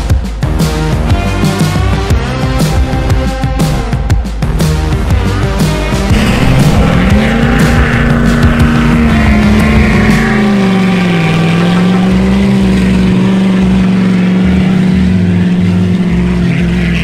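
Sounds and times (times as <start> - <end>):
engine droning at high revs: 0.7 - 17.0.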